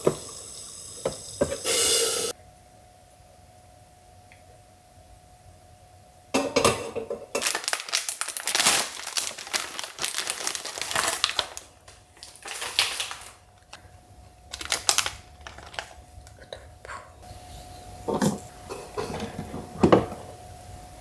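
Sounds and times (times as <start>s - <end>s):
crinkly material crumpling: 7.4s - 16.6s.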